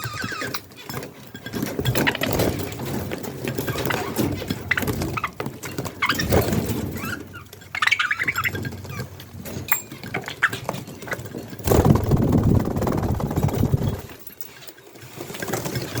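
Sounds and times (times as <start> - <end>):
low rumbling noise: 11.6 - 14.2.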